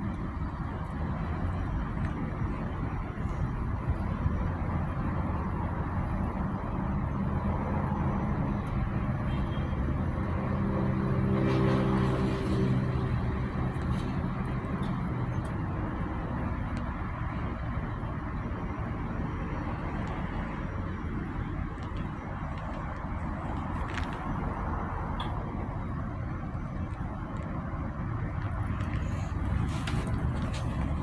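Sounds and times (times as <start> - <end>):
engine low hum: 0.0 - 31.0.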